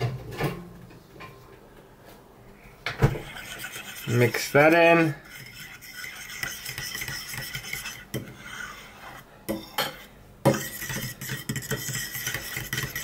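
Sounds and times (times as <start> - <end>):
spoon stirring oatmeal in bowl: 3.2 - 13.0.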